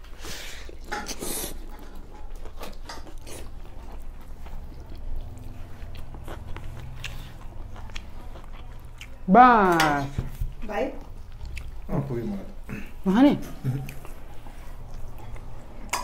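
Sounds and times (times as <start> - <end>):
chewing food: 0.0 - 16.0
clicks of eating with hands: 0.1 - 10.0, 13.6 - 16.0.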